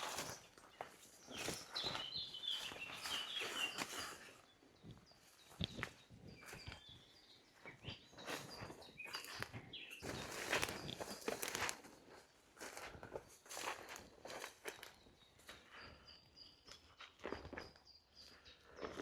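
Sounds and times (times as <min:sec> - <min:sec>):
small birds chirping: 0:00.0 - 0:19.0
footsteps walking: 0:08.3 - 0:11.9.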